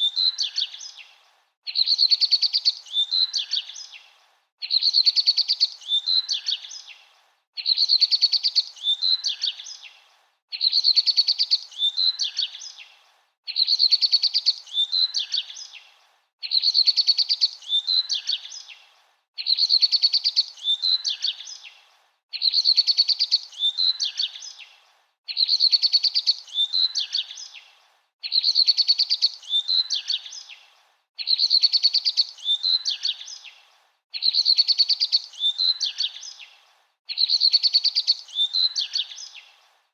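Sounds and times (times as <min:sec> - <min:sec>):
songbird trilling: 0:19.4 - 0:21.6, 0:22.4 - 0:24.6, 0:25.3 - 0:27.6, 0:28.2 - 0:30.5, 0:31.2 - 0:33.5, 0:34.2 - 0:36.5, 0:37.1 - 0:39.5.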